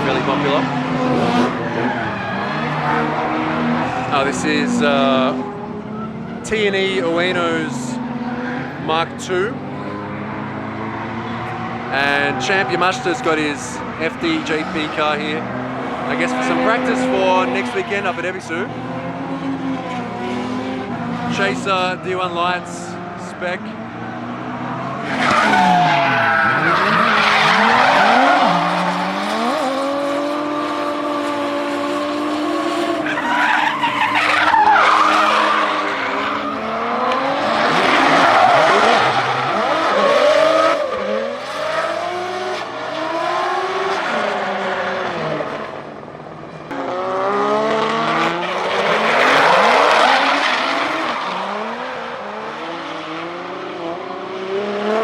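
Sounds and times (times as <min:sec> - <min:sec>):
drift car engines revving: 0:00.0 - 0:55.0
tyres squealing: 0:24.6 - 0:29.7, 0:32.9 - 0:36.7.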